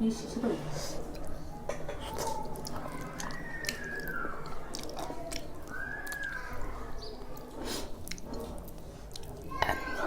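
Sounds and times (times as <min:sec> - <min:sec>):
chewing and biting food: 0:02.0 - 0:10.0
wet mouth clicks: 0:02.1 - 0:06.4, 0:07.4 - 0:09.8.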